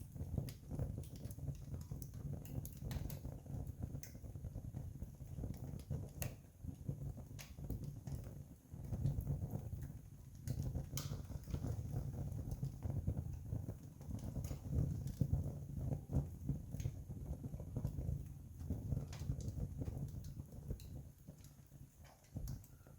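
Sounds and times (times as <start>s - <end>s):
campfire crackling: 0.0s - 22.9s
sharp fire pops: 0.0s - 22.9s.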